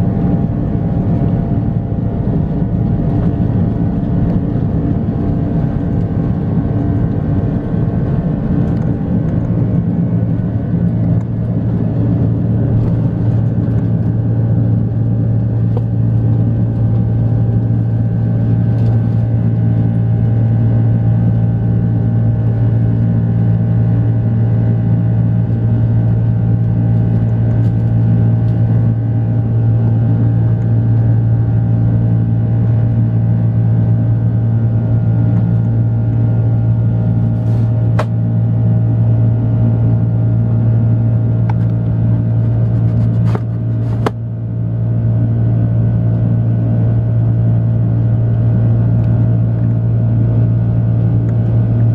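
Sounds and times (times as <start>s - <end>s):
jet engines droning: 0.0s - 21.4s.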